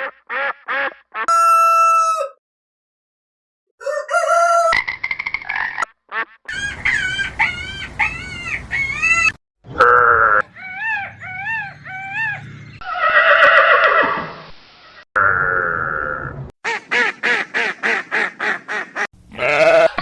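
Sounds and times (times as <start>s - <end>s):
rising and falling animal calls: 6.5s - 14.5s.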